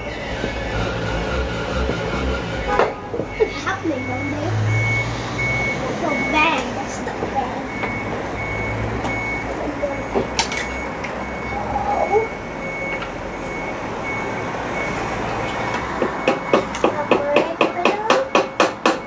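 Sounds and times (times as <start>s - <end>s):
high electronic beeps: 0.1s - 6.8s, 7.4s - 15.0s.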